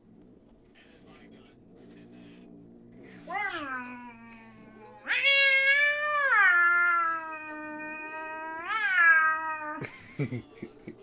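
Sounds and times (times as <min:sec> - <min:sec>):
cat yowling: 0:03.2 - 0:09.8.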